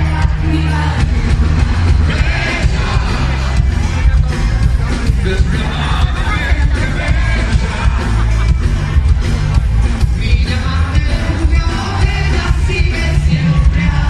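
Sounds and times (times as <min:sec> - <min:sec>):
live pop rock band: 0:00.0 - 0:14.0
person singing: 0:10.1 - 0:14.0.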